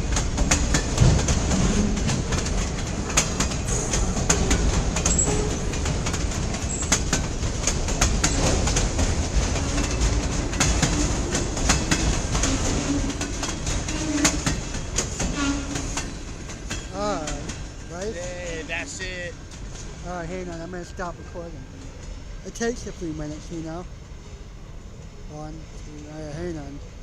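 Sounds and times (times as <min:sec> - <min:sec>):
wheels clicking over rail joints: 0:00.0 - 0:23.8
train rumble: 0:00.0 - 0:27.0
wheel squeals: 0:00.4 - 0:07.3, 0:08.0 - 0:08.8, 0:09.4 - 0:17.0.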